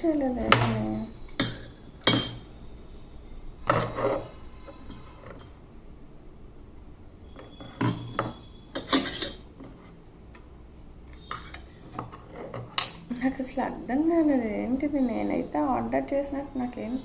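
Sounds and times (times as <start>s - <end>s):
parcel rustling and clattering: 7.4s - 10.0s.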